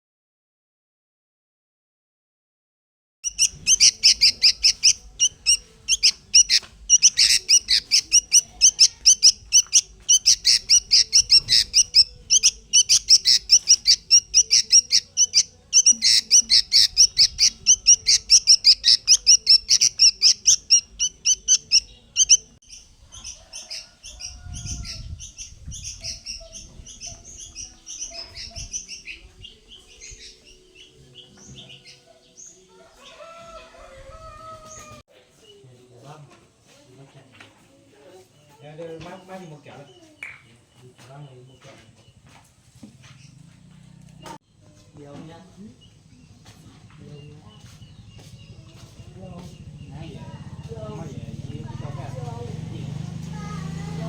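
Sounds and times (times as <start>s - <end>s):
bird chirping: 3.2s - 33.3s.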